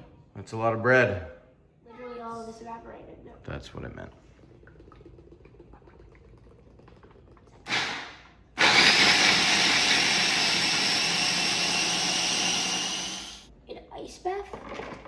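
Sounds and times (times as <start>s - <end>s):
kitchen blender motor whirring: 7.7s - 13.5s.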